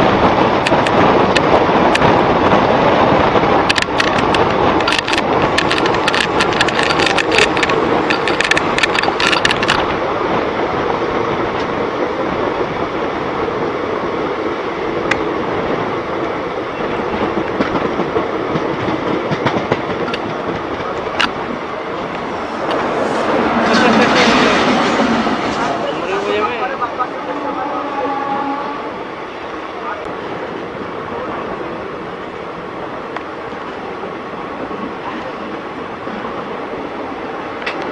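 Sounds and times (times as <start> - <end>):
train wheels rumbling on track: 0.0 - 37.9
clicks and rattles: 3.7 - 10.0.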